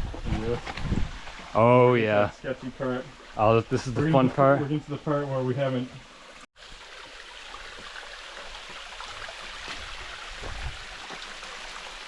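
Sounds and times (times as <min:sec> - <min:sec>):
creek water rushing: 0:01.1 - 0:12.0.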